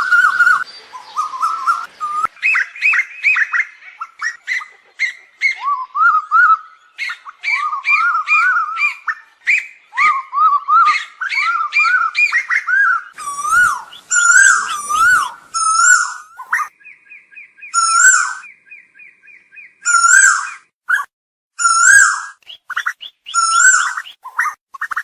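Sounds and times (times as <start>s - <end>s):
bird calling rising whistles: 0.0s - 4.4s, 5.4s - 21.0s, 21.6s - 24.6s
fast run of higher bird notes: 13.2s - 16.7s.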